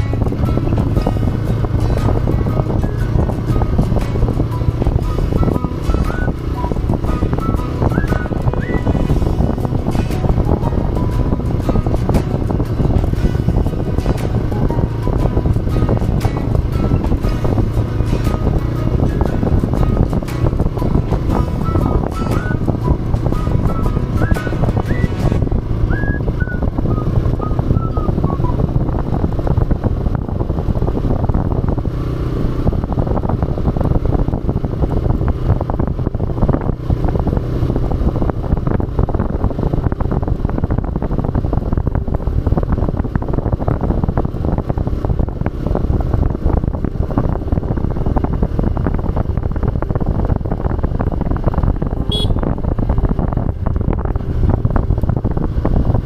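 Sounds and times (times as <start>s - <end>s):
motorcycle engine running: 0.0s - 56.0s
wind on microphone: 0.0s - 56.0s.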